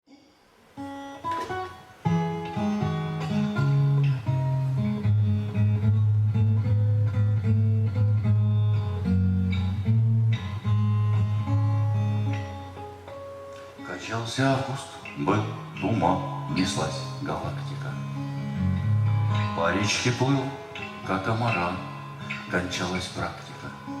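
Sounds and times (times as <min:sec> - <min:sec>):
acoustic guitar picking: 0:00.8 - 0:24.0
low bass line: 0:03.8 - 0:12.3.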